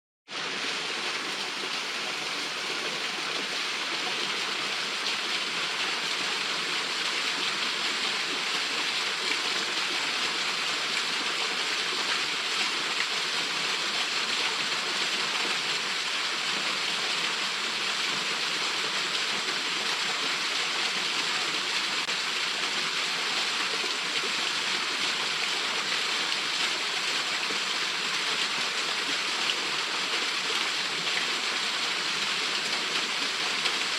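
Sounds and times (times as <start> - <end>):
small waterfall pouring: 0.3 - 33.9.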